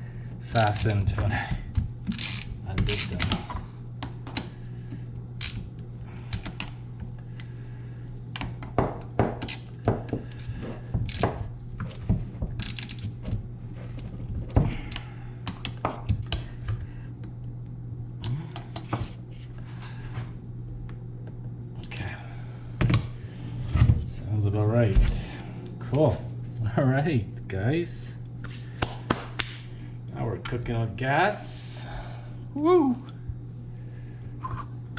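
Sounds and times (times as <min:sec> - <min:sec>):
steady low hum: 0:00.0 - 0:34.9
hand tools clicking on metal: 0:02.1 - 0:03.4.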